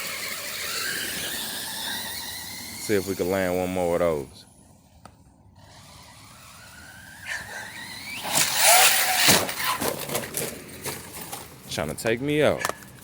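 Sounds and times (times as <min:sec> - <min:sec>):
electric motor whining: 0:00.0 - 0:04.2, 0:05.5 - 0:11.4
tires scrabbling: 0:00.0 - 0:04.3, 0:05.5 - 0:13.0
rattles: 0:07.5 - 0:13.0
toy truck landing thud: 0:08.2 - 0:11.5.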